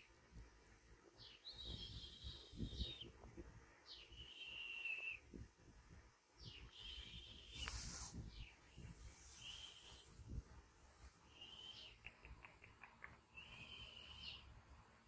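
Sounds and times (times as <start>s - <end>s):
whistled bird call: 3.9s - 5.2s, 6.7s - 7.8s, 9.4s - 10.1s, 11.3s - 12.1s, 13.4s - 14.5s
brief hiss: 7.5s - 8.4s
soft rustling: 7.5s - 11.2s.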